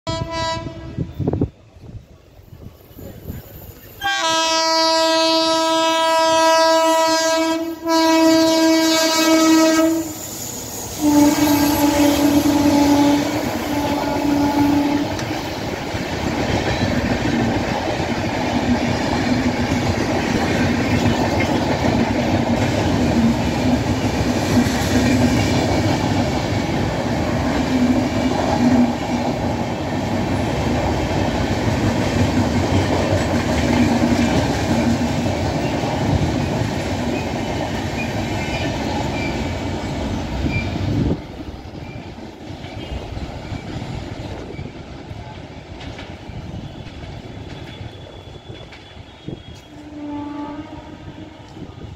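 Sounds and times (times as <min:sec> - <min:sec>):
train horn blasts: 0:00.0 - 0:01.4, 0:04.0 - 0:10.2, 0:11.0 - 0:15.4, 0:42.8 - 0:43.2, 0:46.6 - 0:51.9
train wheels on rails: 0:00.1 - 0:51.9.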